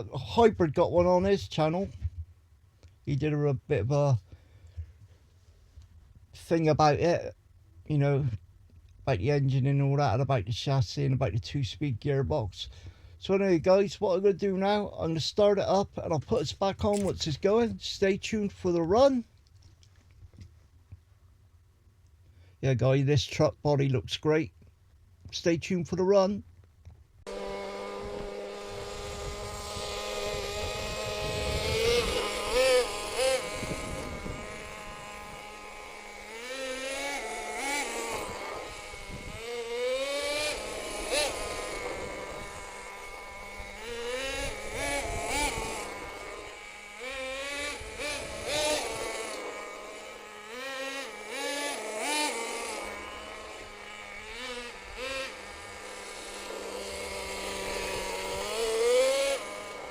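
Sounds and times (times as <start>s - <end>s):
model truck nitro engine revving: 16.7s - 18.1s, 27.2s - 59.9s.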